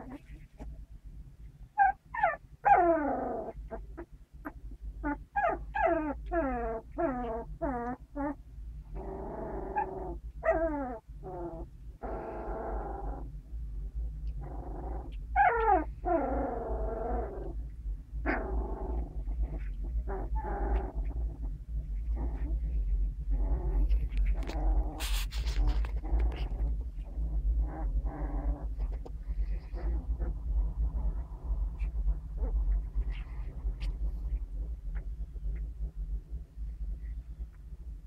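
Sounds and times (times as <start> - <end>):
low hum: 0.0 - 38.0
puppies whining and squealing: 1.8 - 8.4, 9.0 - 13.3, 14.3 - 17.6, 18.3 - 35.0.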